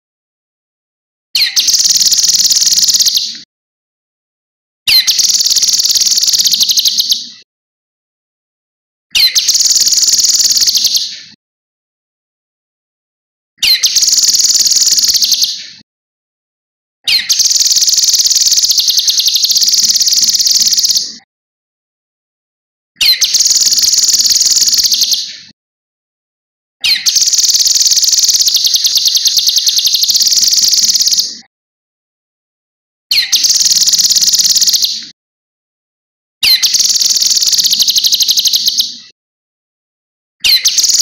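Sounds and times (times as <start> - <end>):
songbird fast high trilling: 1.4 - 3.2, 4.9 - 7.2, 9.2 - 11.1, 13.6 - 15.6, 17.1 - 21.1, 23.0 - 25.2, 26.8 - 31.3, 33.1 - 35.0, 36.4 - 38.9, 40.4 - 41.0.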